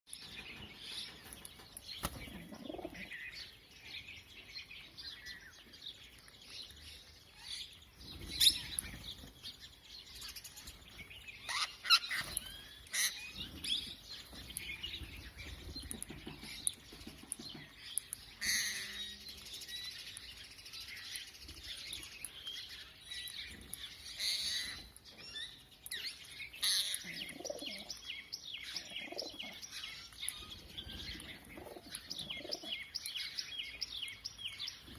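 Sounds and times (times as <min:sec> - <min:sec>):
parrots chirping and squawking: 0:11.4 - 0:14.0, 0:24.1 - 0:24.9.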